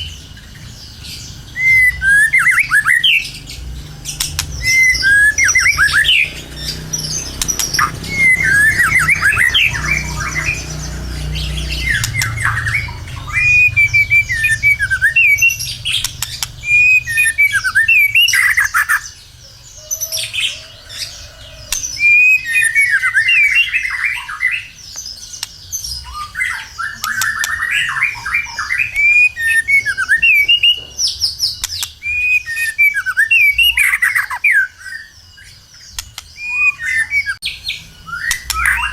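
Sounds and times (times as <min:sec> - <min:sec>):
low rumble: 0:00.0 - 0:19.4
bird singing whistles: 0:01.0 - 0:03.4, 0:04.1 - 0:38.9.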